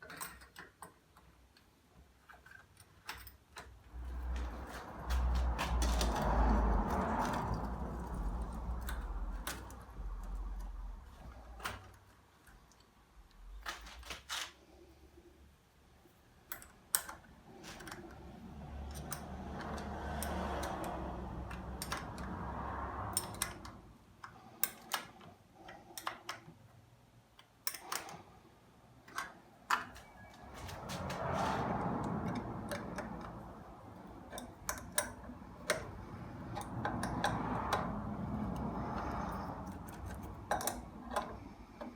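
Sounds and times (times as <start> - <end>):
small metal parts clinking: 0.0 - 1.1, 38.7 - 41.6.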